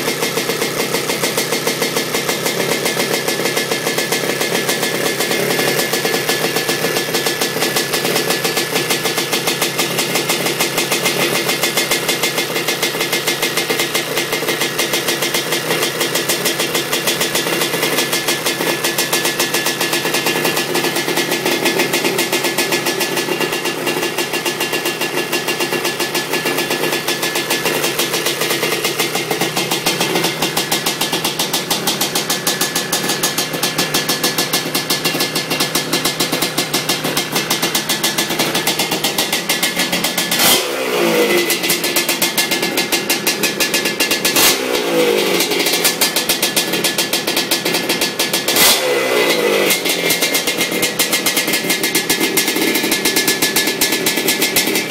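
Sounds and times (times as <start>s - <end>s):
two-stroke engine idling: 0.0s - 54.9s
engine throttle blips: 36.0s - 46.8s.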